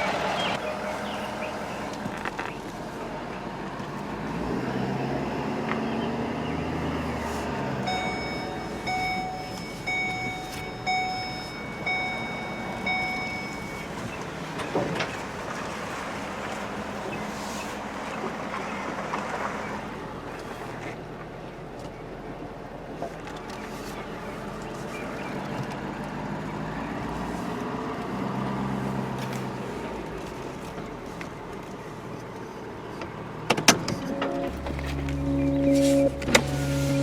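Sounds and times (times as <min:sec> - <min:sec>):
vehicle engine running: 0:00.0 - 0:37.0
electronic beeper: 0:07.9 - 0:13.9, 0:34.0 - 0:37.0.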